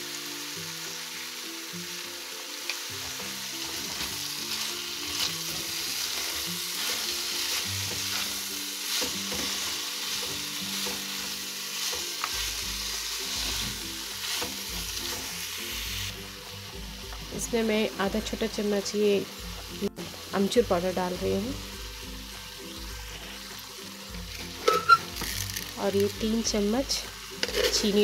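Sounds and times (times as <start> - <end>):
pumpkin sizzling in hot oil: 0.0 - 28.0
spatula scraping and knocking pan: 5.0 - 12.6, 27.4 - 28.0.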